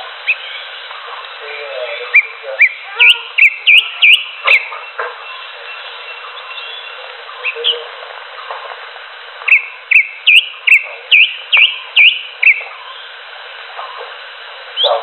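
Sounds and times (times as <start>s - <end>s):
steady hiss: 0.0s - 15.0s
bird whistling calls: 0.2s - 0.8s, 2.0s - 7.9s, 9.5s - 13.1s.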